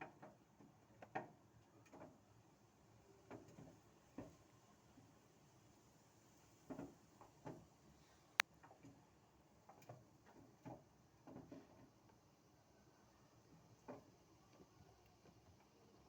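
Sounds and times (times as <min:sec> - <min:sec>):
squirrel taps and scrapes: 0:03.3 - 0:05.1, 0:06.6 - 0:07.7, 0:08.4 - 0:12.3, 0:13.6 - 0:16.0.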